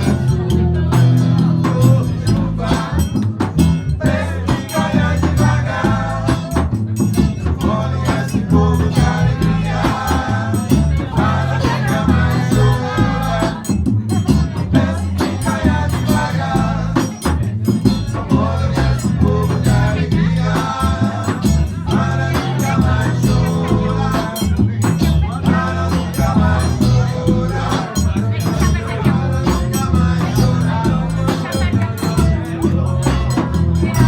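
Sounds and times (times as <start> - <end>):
shaken percussion: 0.0 - 34.0
steady bass: 0.0 - 34.0
person singing: 18.1 - 34.0.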